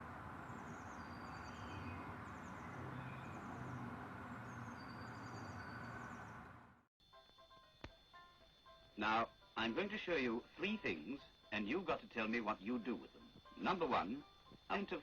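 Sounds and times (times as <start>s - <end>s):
low outdoor background rumble: 0.0s - 6.9s
birds chirping in rapid trills: 0.2s - 6.6s.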